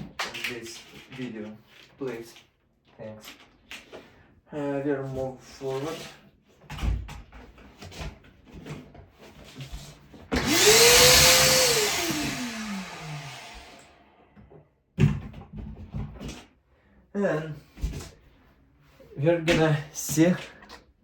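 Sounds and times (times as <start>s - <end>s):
electric motor spinning with hiss: 10.4s - 13.9s.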